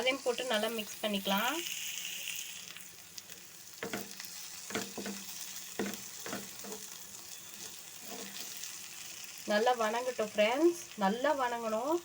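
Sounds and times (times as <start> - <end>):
masala sizzling in oil: 0.0 - 12.0
utensil scraping a pan: 4.7 - 8.6.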